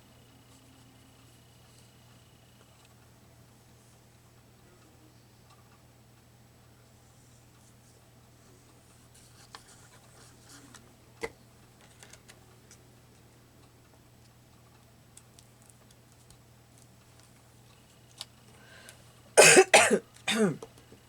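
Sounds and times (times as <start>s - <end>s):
small clicks and taps: 10.7s - 13.3s, 13.9s - 19.0s.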